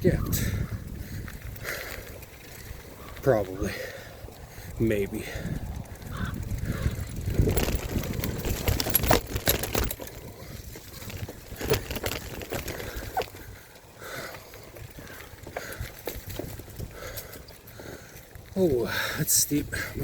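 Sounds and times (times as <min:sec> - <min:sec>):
heavy rumble: 0:05.5 - 0:13.4
bike clattering knocks and clicks: 0:06.0 - 0:17.5.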